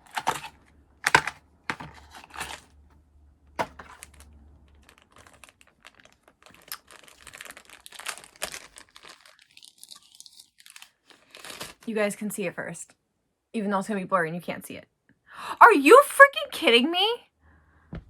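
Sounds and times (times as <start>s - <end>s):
packaging tearing and crinkling: 0.0s - 2.7s, 3.6s - 11.8s.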